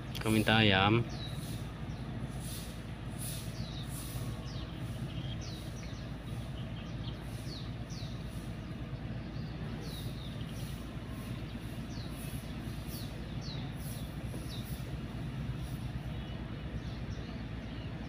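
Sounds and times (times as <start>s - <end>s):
bird chirping: 0.0s - 18.0s
steady low rumble: 0.0s - 18.0s.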